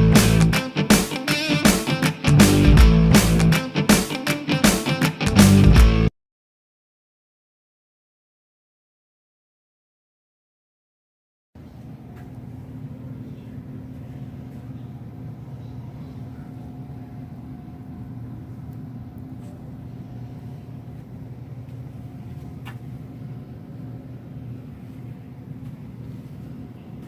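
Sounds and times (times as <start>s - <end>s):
low mechanical rumble with hum: 11.6s - 27.0s.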